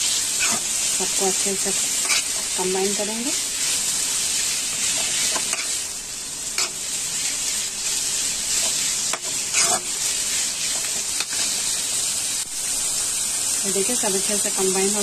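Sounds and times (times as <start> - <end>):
meat sizzling in oil: 0.0 - 15.0
spatula scraping a pan: 0.4 - 0.7, 1.9 - 2.5, 3.6 - 5.8, 6.6 - 7.6, 8.5 - 11.8.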